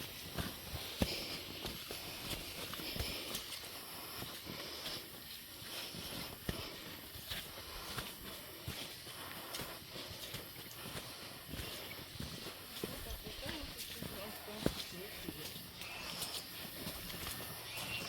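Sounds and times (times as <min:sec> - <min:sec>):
footsteps on trail: 0:00.0 - 0:18.0.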